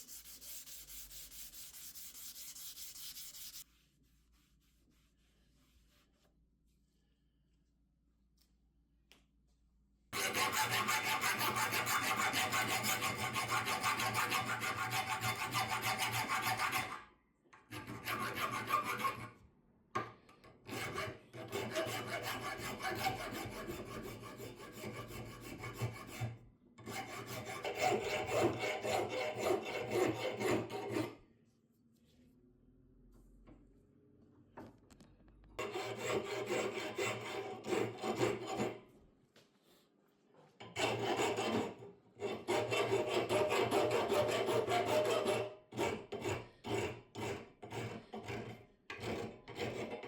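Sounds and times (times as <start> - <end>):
rasping scrub on metal: 0.0 - 6.0, 10.2 - 17.0, 17.8 - 19.3, 20.7 - 31.2, 35.6 - 38.8, 40.8 - 50.0.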